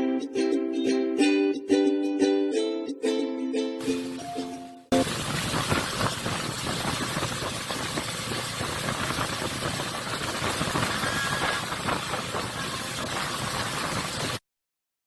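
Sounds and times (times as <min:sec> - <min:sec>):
ukulele music: 0:00.0 - 0:05.2
rough engine running: 0:04.9 - 0:14.4.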